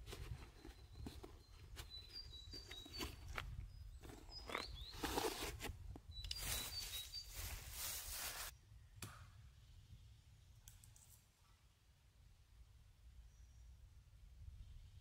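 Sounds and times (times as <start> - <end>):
bird chirps: 0.3 - 5.5, 6.1 - 8.2
rustling in leaf litter: 6.4 - 8.5.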